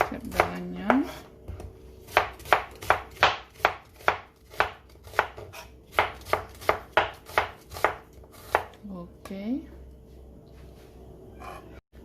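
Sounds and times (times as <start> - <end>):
knife chopping onion on board: 0.0 - 8.8.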